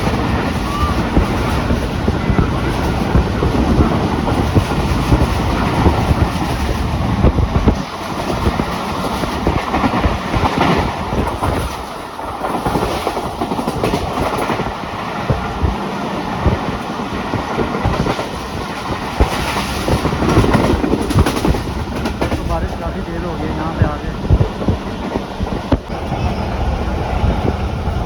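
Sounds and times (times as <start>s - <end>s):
train wheels clattering over rail joints: 0.0s - 26.2s
deep train rumble: 0.0s - 28.0s.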